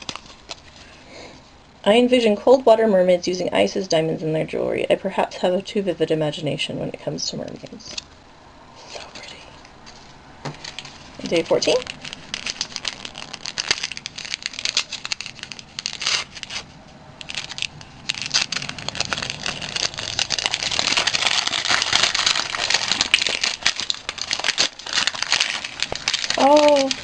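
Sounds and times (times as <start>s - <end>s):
wrapping paper tearing and crinkling: 0.0s - 1.0s, 8.9s - 27.0s.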